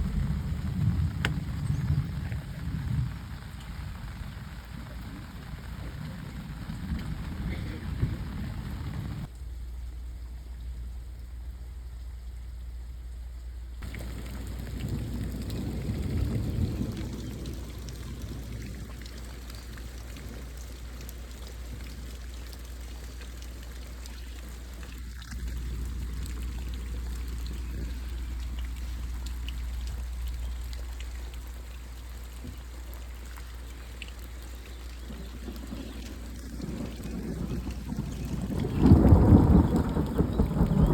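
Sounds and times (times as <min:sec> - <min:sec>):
heavy rain hissing: 0:00.0 - 0:09.3, 0:13.8 - 0:40.9
low rumble: 0:00.0 - 0:19.1, 0:25.0 - 0:31.5
raindrops ticking: 0:00.0 - 0:40.9
water pouring off surfaces: 0:13.8 - 0:40.9.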